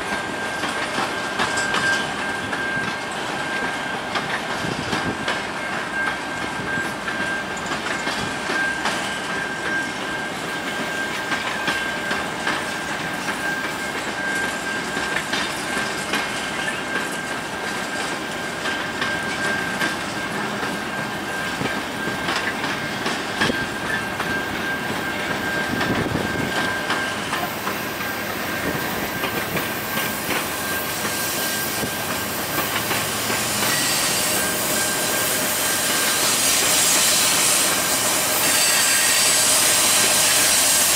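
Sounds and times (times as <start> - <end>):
wheels clicking over rail joints: 0.0 - 36.3
locomotive passing: 0.0 - 40.9
high-pitched wheel squeal: 33.4 - 40.9.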